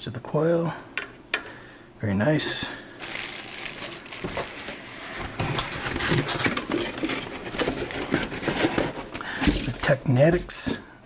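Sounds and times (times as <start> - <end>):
packaging rustling: 3.0 - 9.9.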